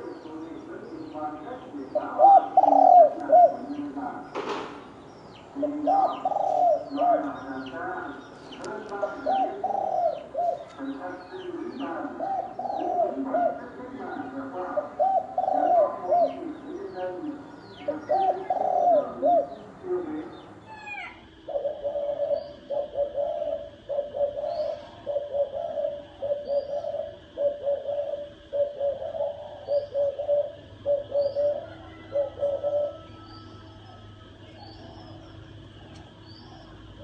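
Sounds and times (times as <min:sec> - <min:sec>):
doves cooing: 0:00.0 - 0:37.0
faint high bird chirps: 0:20.4 - 0:37.0.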